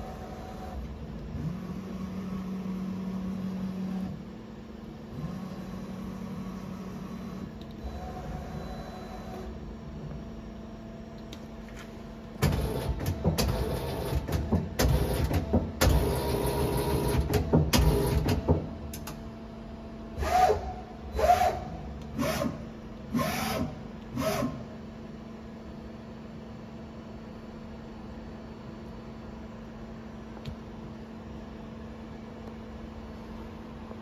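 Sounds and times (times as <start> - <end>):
steady hum: 0.0 - 34.0
short whirring bursts: 20.2 - 24.7.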